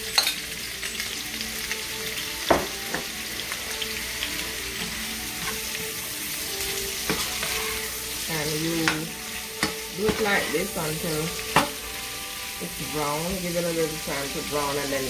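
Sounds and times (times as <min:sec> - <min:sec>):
chicken sizzling in hot oil: 0:00.0 - 0:15.0
utensil knocking against pan: 0:02.5 - 0:03.1, 0:08.8 - 0:10.5, 0:11.5 - 0:11.8.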